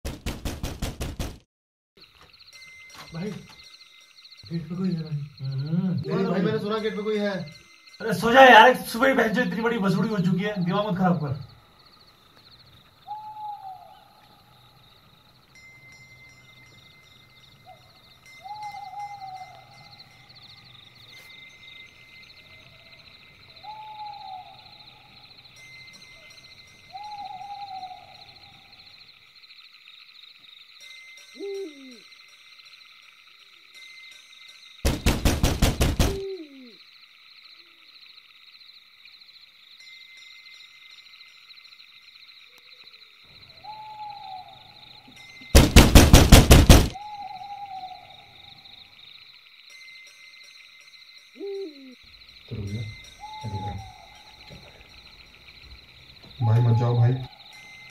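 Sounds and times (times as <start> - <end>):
rapid banging on wooden door: 0.0 - 1.4, 34.9 - 36.3, 45.6 - 47.0
crickets chirping: 2.0 - 57.9
frogs or insects chorus: 2.0 - 57.9
owl hooting: 13.0 - 14.6, 17.6 - 20.7, 22.4 - 25.4, 26.9 - 28.9, 31.4 - 32.0, 36.0 - 36.8, 43.4 - 45.2, 46.7 - 48.7, 51.4 - 55.0, 55.6 - 57.9.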